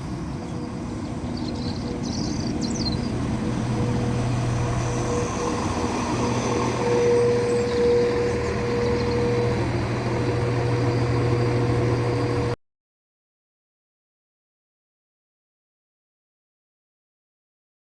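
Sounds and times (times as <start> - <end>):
diesel train engine idling: 0.0 - 12.6.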